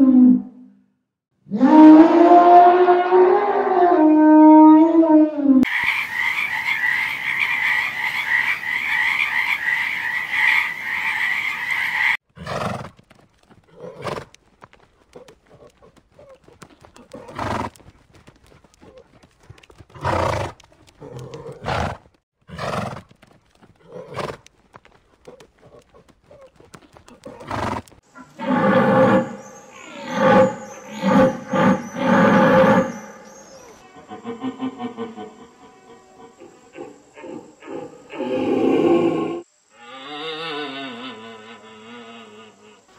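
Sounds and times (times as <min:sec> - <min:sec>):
frog chorus: 0:05.6 - 0:12.2, 0:28.1 - 0:42.9
horse snorting: 0:12.3 - 0:14.4, 0:15.1 - 0:17.8, 0:18.8 - 0:24.5, 0:25.3 - 0:29.2.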